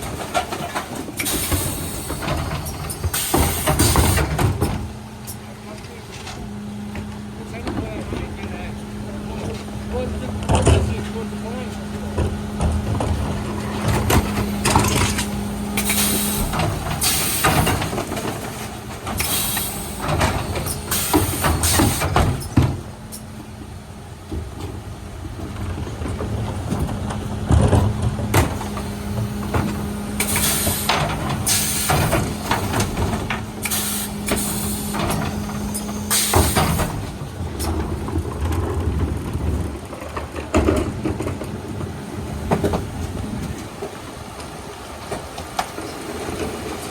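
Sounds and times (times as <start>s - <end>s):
refuse truck hum: 0.0s - 46.9s
clanks and knocks: 9.4s - 23.3s, 24.2s - 46.9s
short air hisses: 15.8s - 17.8s, 30.2s - 32.1s, 33.6s - 36.9s.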